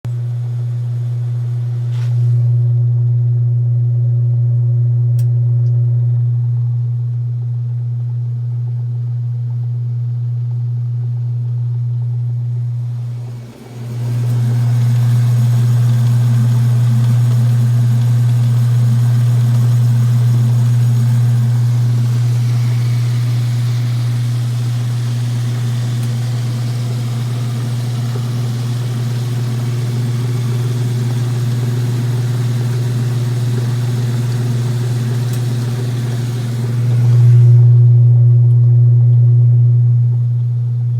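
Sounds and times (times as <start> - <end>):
rough noise from washer: 0.0 - 2.8, 12.0 - 38.1
washer motor humming: 0.0 - 4.5, 5.2 - 40.9.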